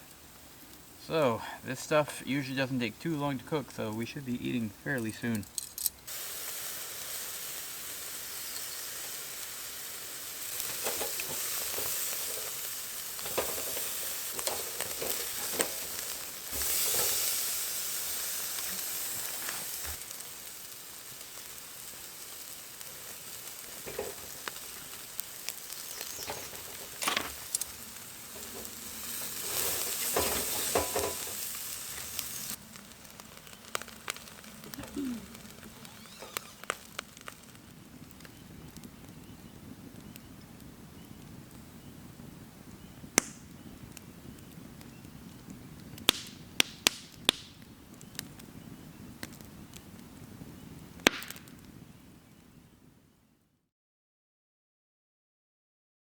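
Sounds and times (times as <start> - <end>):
meat sizzling in a pan: 6.0 - 40.1
utensil scraping pan: 13.2 - 17.4, 28.4 - 31.5.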